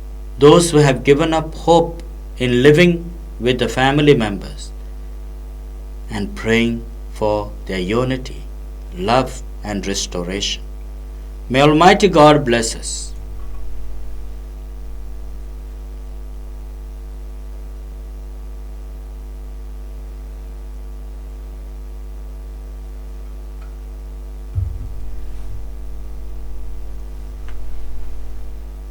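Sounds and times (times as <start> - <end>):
electrical mains hum: 0.0 - 28.9
low thumps: 13.1 - 17.0, 24.6 - 28.9.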